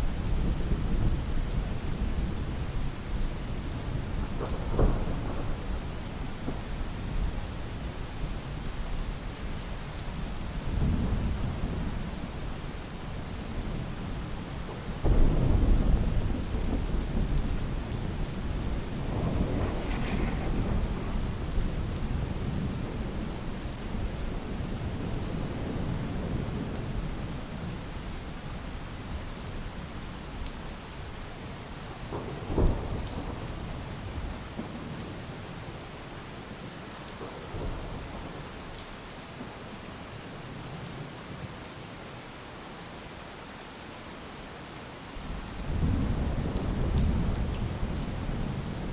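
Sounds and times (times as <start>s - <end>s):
steady rain falling: 0.0s - 48.9s
thunder rumbling: 4.0s - 7.4s, 15.0s - 27.3s, 32.1s - 35.0s, 45.6s - 48.9s
sharp thunder crack: 18.9s - 21.6s.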